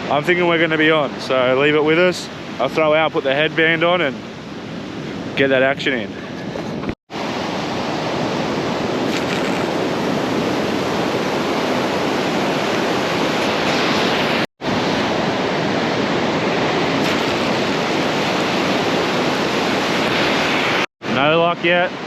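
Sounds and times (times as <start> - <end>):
waves breaking on a beach: 0.0 - 22.0
wind on the microphone: 4.4 - 20.8.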